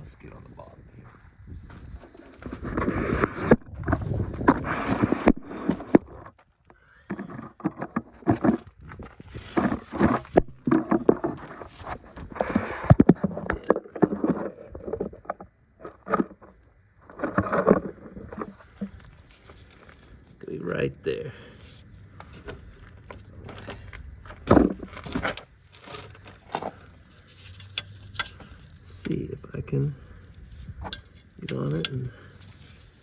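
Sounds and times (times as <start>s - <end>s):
hand tools clicking and knocking: 30.8s - 32.4s.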